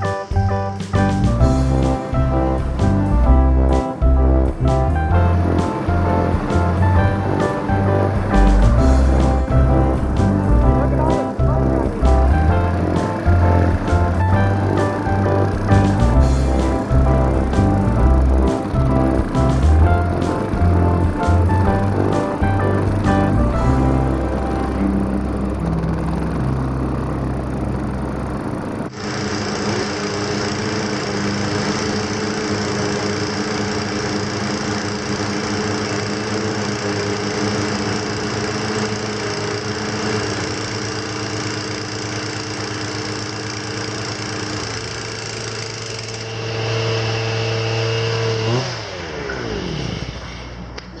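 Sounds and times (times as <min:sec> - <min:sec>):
music: 0:00.0 - 0:27.8
small gasoline engines droning: 0:01.4 - 0:51.0.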